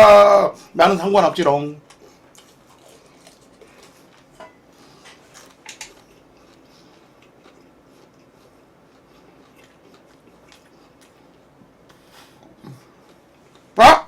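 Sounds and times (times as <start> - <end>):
chewing clicks and smacks: 1.9 - 4.3, 5.3 - 13.7.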